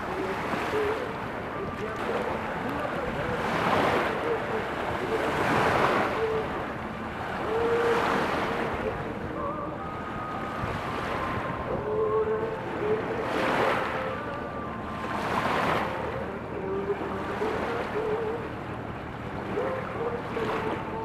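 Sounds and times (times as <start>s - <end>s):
rushing wind: 0.0s - 16.6s
river water rushing: 0.0s - 21.0s
wind on microphone: 0.0s - 21.0s.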